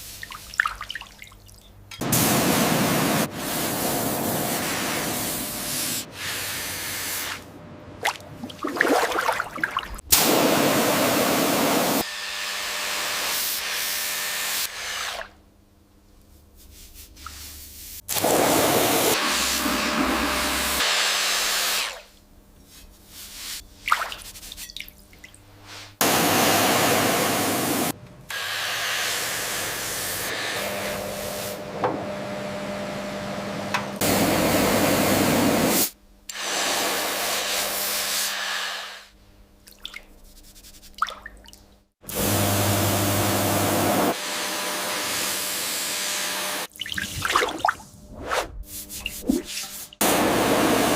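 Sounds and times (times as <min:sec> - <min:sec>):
loud rushing hiss: 0:26.0 - 0:30.7.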